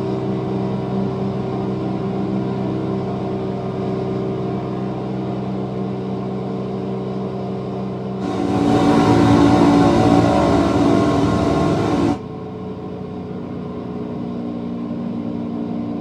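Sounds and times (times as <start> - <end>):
rush of noise: 8.2 - 12.2
engine drone: 8.2 - 12.5.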